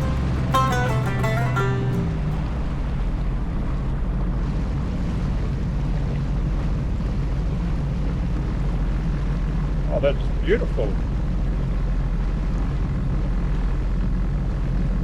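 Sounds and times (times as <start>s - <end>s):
water rushing past hull: 0.0s - 15.0s
jet ski engine running: 3.2s - 15.0s.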